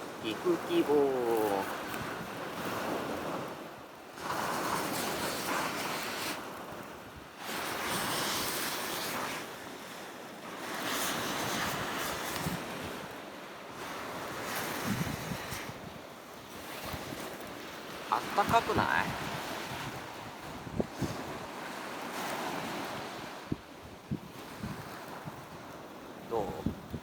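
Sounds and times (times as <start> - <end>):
sea waves breaking on shore: 0.0 - 27.0
wind on microphone: 10.7 - 13.2, 13.8 - 27.0.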